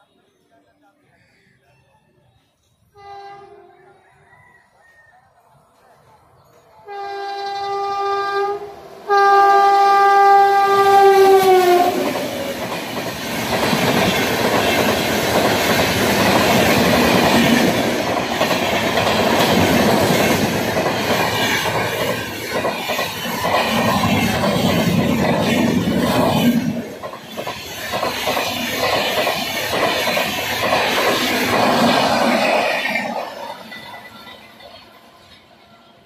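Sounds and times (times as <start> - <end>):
two-tone locomotive horn: 2.9 - 4.0, 6.8 - 12.4.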